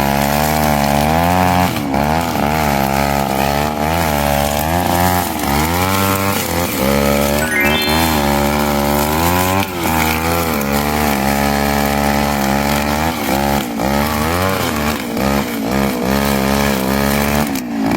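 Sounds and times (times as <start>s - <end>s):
brush cutter engine cutting grass: 0.0s - 6.8s, 10.7s - 17.9s.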